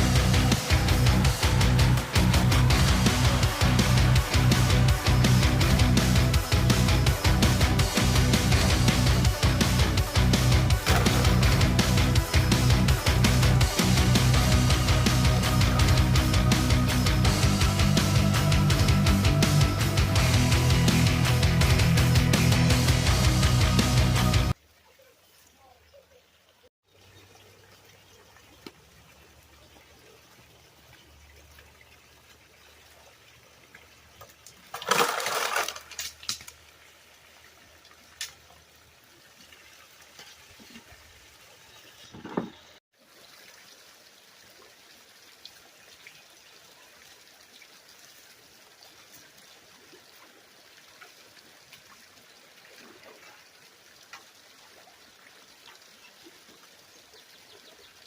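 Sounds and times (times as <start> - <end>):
loud water splash: 10.6 - 12.4
water running and trickling: 24.5 - 58.0.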